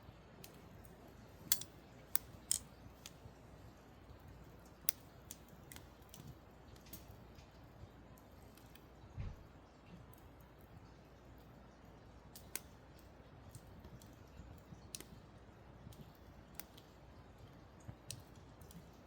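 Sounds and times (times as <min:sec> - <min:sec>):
firewood crackling and popping: 0:00.1 - 0:19.0.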